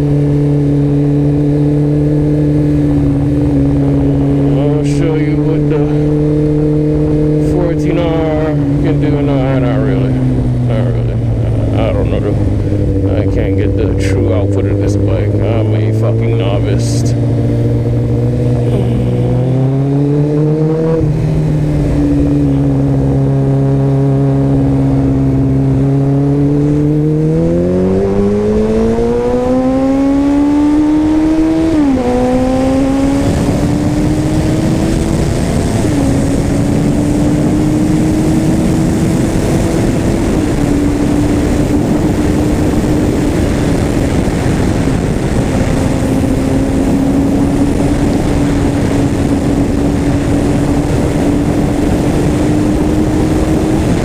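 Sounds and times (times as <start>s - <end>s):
motorcycle engine accelerating hard: 0.0s - 54.0s
wind rush: 0.0s - 54.0s.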